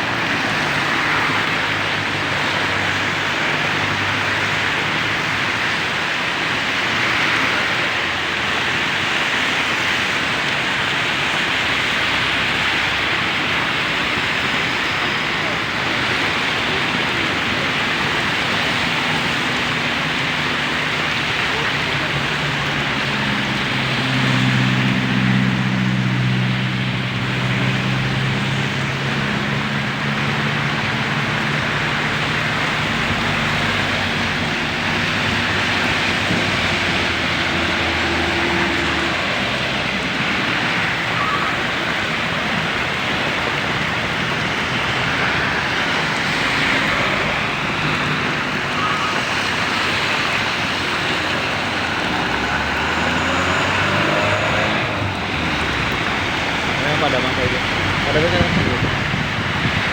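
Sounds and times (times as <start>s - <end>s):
heavy rain: 0.0s - 59.9s
traffic on wet road: 0.0s - 59.9s
vehicle engine humming: 0.0s - 59.9s
strong wind: 4.4s - 59.9s.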